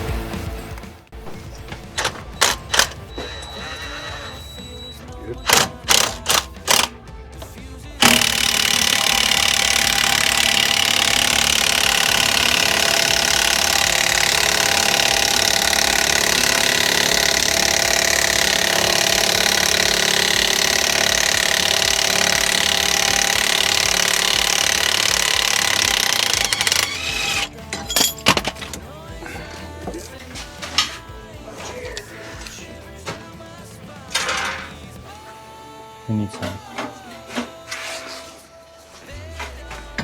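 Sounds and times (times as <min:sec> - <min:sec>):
power tool running: 0:01.2 - 0:31.3.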